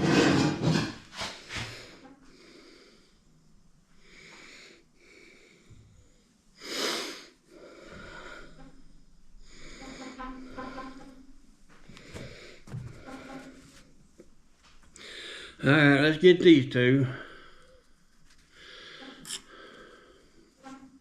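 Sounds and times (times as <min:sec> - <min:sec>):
person breathing and sniffing: 0:06.6 - 0:08.8, 0:11.8 - 0:14.0, 0:17.2 - 0:20.6.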